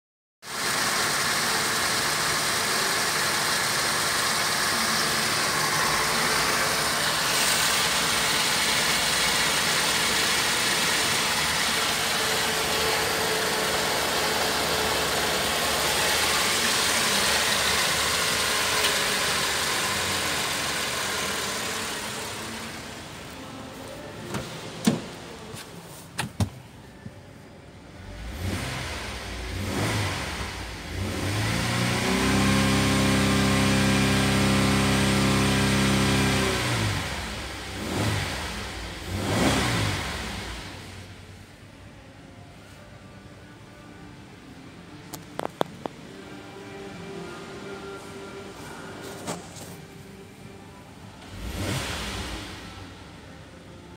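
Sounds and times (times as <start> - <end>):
car engine running: 0.5 - 25.6
engine revving: 28.0 - 41.0, 51.2 - 52.9.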